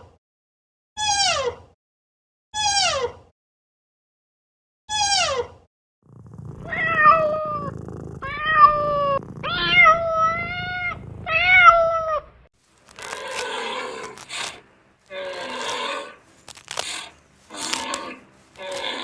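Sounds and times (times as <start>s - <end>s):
cat meowing: 6.2s - 12.4s
rough noisy sound: 12.7s - 19.0s.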